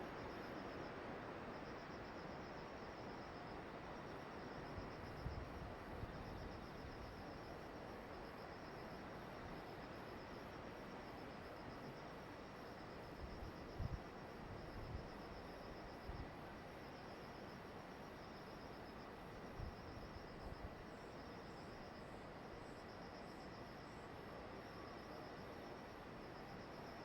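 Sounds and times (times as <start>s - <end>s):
insects chirping: 0.0s - 27.0s.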